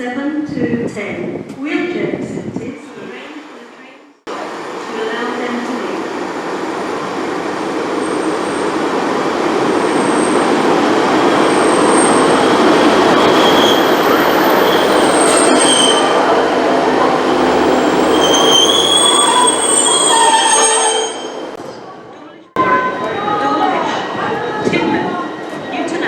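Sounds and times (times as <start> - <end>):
train rumbling on track: 0.5 - 26.0
wheel flanges squealing: 9.9 - 21.6.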